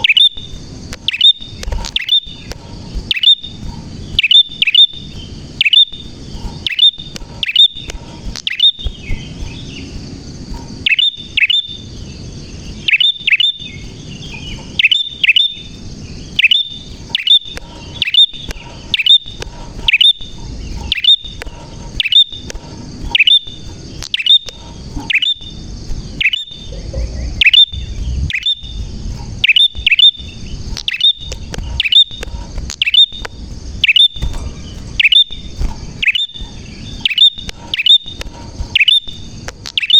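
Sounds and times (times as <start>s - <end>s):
bird singing sharp chirps: 0.0s - 10.0s, 10.7s - 39.9s.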